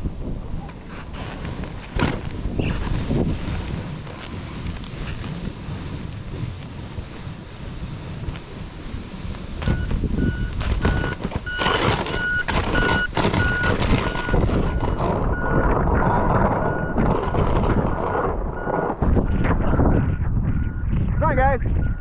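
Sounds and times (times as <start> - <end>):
loud wind: 0.0 - 22.0
rumbling noise: 0.0 - 22.0
back-up alarm beeping: 9.6 - 15.8, 16.6 - 20.9, 21.8 - 22.0.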